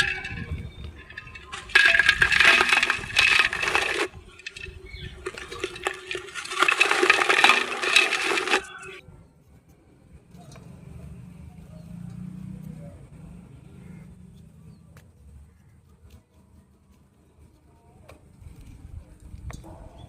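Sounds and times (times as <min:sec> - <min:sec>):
clay crushed and crackling: 0:00.0 - 0:09.0.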